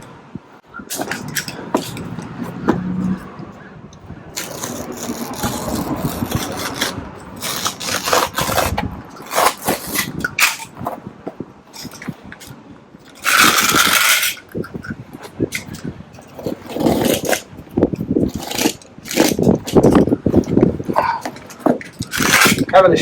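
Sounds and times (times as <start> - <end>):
utility knife cutting carpet: 4.4 - 10.6.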